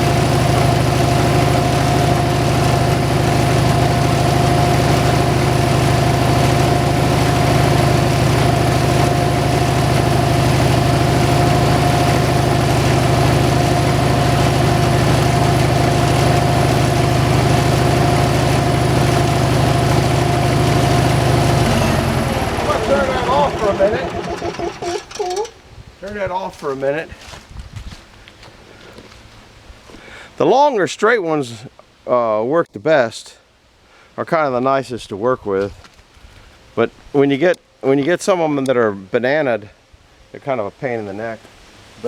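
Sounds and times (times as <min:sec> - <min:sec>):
motor humming with a whine: 0:00.0 - 0:25.7.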